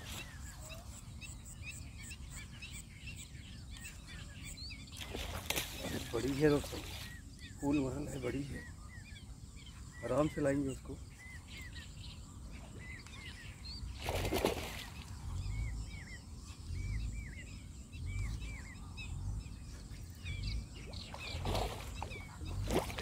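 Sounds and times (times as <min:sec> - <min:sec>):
bird chirping: 0:00.0 - 0:23.0
low background rumble: 0:15.1 - 0:22.9.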